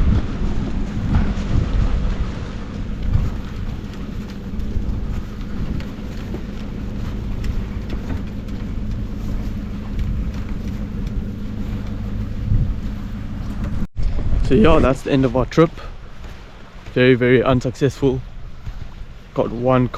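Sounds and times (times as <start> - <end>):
car engine and road rumble: 0.0 - 17.0
light ticks: 2.7 - 12.4.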